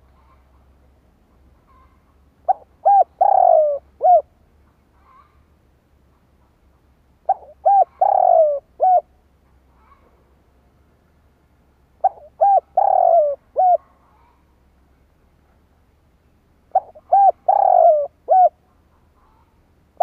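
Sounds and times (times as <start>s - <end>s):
dove cooing: 1.7s - 4.4s, 7.2s - 9.2s, 12.0s - 14.0s, 16.7s - 19.5s.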